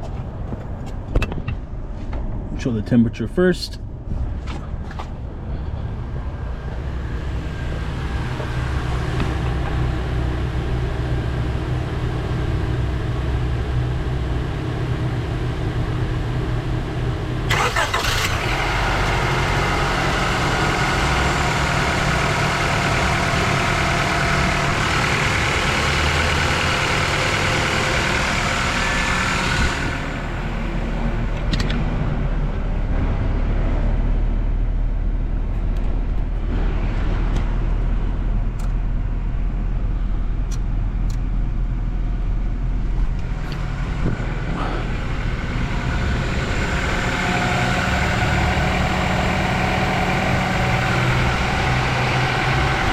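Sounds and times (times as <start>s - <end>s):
car engine idling: 4.8s - 36.6s, 37.3s - 52.9s
light engine ticks: 40.5s - 41.3s.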